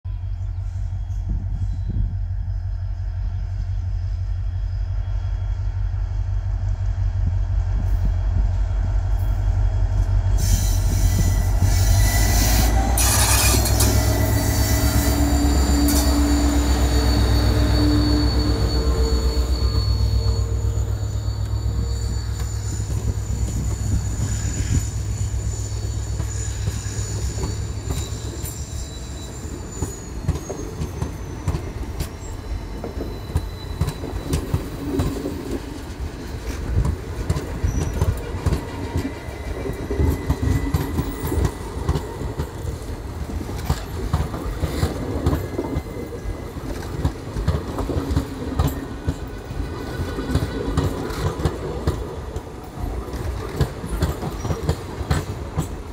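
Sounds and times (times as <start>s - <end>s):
train wheels clattering over rail joints: 29.8s - 55.9s.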